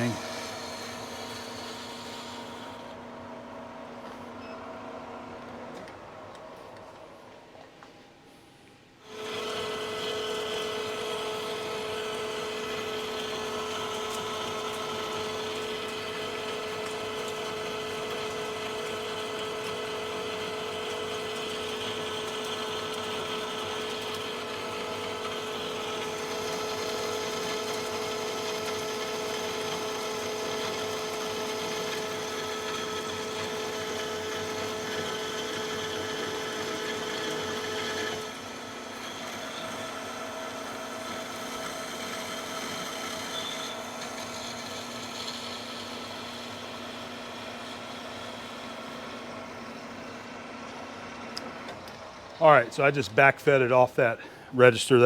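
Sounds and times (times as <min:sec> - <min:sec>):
lathe cutting steel: 0:00.0 - 0:03.0, 0:09.1 - 0:50.0
lathe running with gear whine: 0:00.0 - 0:07.1, 0:09.0 - 0:53.8.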